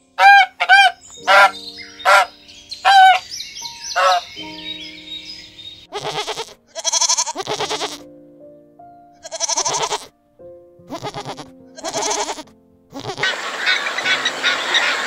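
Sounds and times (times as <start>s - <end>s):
background music with held notes: 0.0s - 15.0s
goat bleating: 5.9s - 8.0s, 9.2s - 10.1s, 10.9s - 13.4s.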